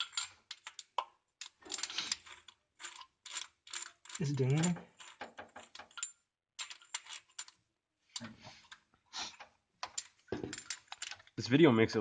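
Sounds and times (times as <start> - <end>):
ratchet clicking: 0.0 - 7.6.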